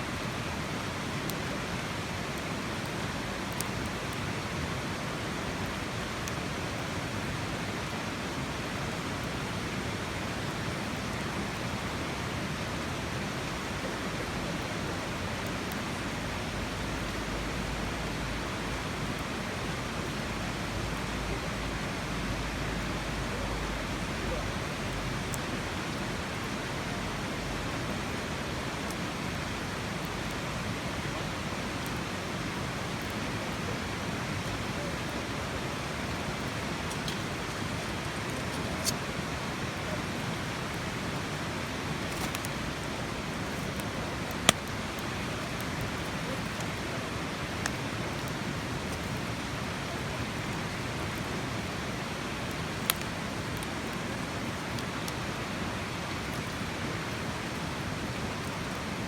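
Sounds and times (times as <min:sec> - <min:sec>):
faint sharp clicks: 0:03.5 - 0:03.7, 0:41.7 - 0:42.9, 0:43.6 - 0:46.8, 0:52.5 - 0:54.1.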